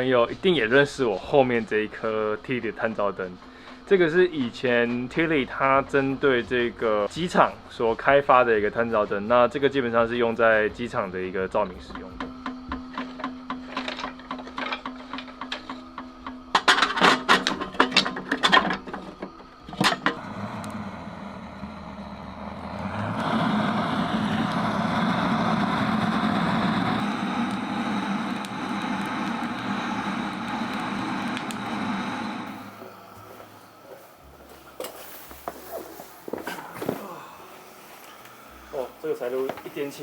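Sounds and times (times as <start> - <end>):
stove fire rushing: 0.0 - 40.0
sharp clicks and knocks: 11.9 - 20.2.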